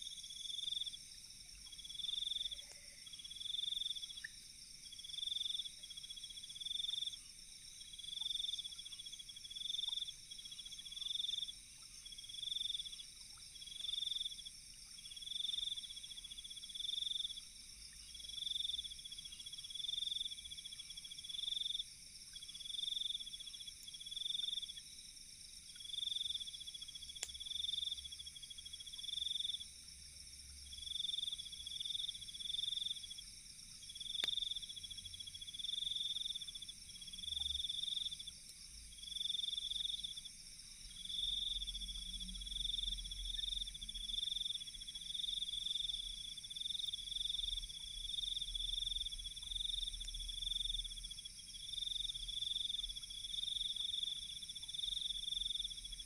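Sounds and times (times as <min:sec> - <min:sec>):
insects chirping in pulsed trills: 0:00.0 - 0:56.0
campfire crackles: 0:26.9 - 0:27.6, 0:33.9 - 0:35.6.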